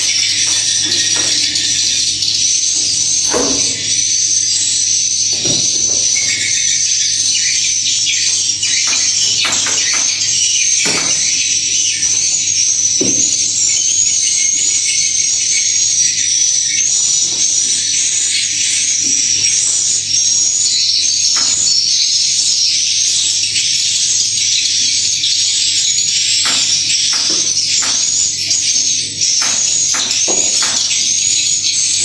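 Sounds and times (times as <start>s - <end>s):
swiftlets twittering: 26.3s - 32.0s.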